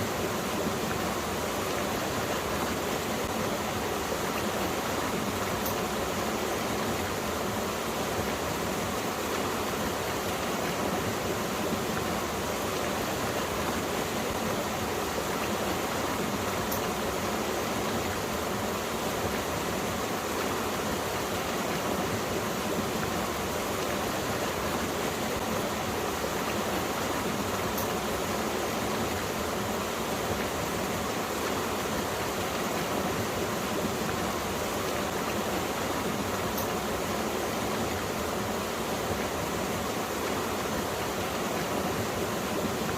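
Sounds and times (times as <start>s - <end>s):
stream flowing over rocks: 0.0s - 42.9s.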